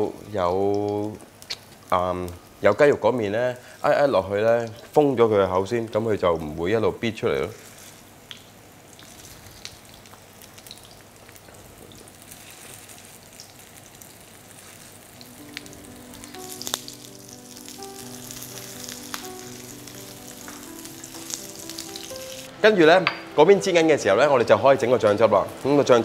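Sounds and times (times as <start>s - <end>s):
food sizzling in hot oil: 6.3s - 26.0s
soft background music: 15.0s - 26.0s.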